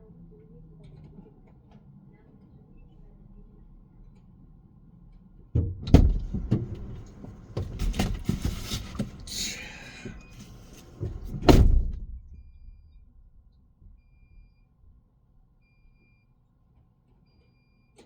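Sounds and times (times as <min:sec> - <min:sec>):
car door shutting: 0:05.6 - 0:12.3
knocks and rustling: 0:05.6 - 0:12.3.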